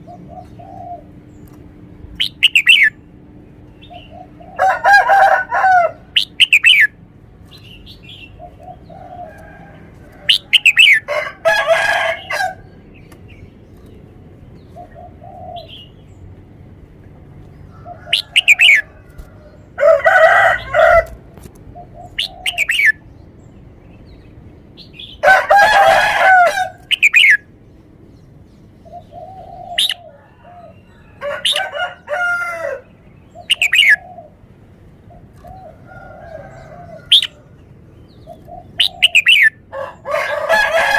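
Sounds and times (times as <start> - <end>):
bird whistling song phrases: 2.2 - 3.0, 6.2 - 7.0, 22.1 - 23.0, 26.8 - 27.4, 33.4 - 34.0, 38.4 - 39.6
faint bird calls: 3.7 - 9.6, 28.8 - 31.7, 33.2 - 40.2.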